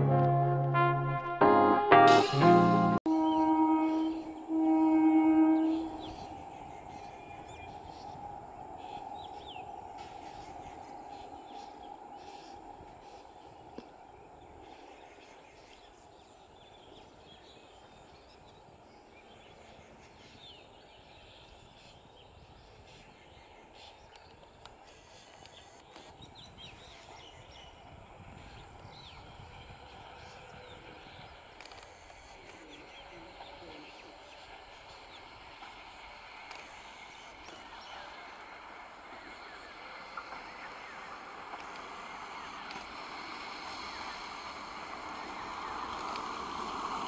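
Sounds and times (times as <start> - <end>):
train rumbling: 2.2 - 47.0
birds chirping: 2.3 - 42.8.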